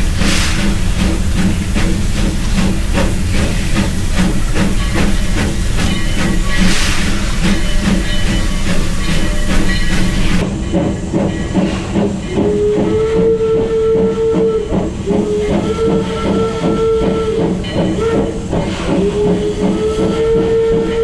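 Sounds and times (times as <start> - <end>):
locomotive low rumble: 0.0 - 10.5
steam hissing: 0.0 - 10.9, 11.6 - 21.0
locomotive chuffing beat: 0.0 - 21.0.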